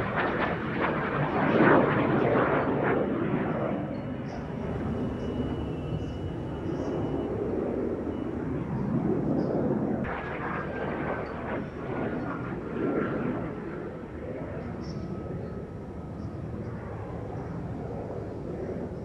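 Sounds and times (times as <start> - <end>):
airplane engine noise: 0.0 - 19.0
faint whine: 2.6 - 19.0.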